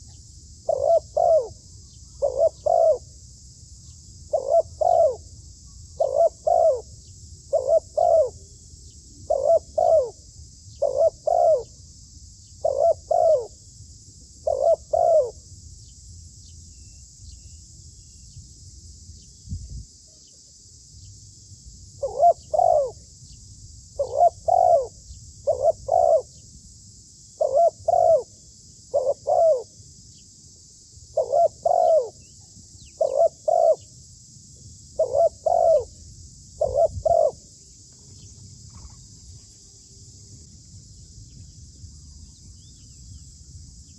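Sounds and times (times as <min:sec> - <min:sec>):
steady high-pitched hiss: 0:00.0 - 0:43.9
dove cooing: 0:00.7 - 0:01.6, 0:02.2 - 0:03.1, 0:04.3 - 0:05.2, 0:06.0 - 0:06.9, 0:07.5 - 0:08.4, 0:09.3 - 0:10.2, 0:10.8 - 0:11.7, 0:12.6 - 0:13.5, 0:14.4 - 0:15.4, 0:22.0 - 0:23.0, 0:24.0 - 0:26.3, 0:27.4 - 0:28.3, 0:28.9 - 0:29.7, 0:31.2 - 0:32.2, 0:33.0 - 0:33.8, 0:35.0 - 0:35.9, 0:36.6 - 0:37.4.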